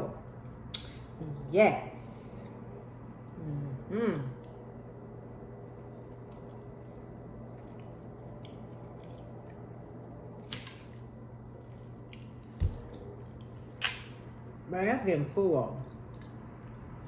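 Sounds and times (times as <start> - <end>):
low hum: 0.0 - 17.0
chewing and wet mouth sounds: 4.4 - 14.3, 15.8 - 16.8.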